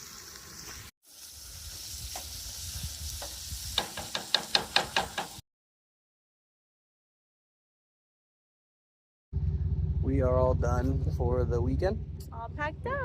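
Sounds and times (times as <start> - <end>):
food sizzling in a frying pan: 0.0 - 5.4
utensil scraping and tapping pan: 3.2 - 5.4.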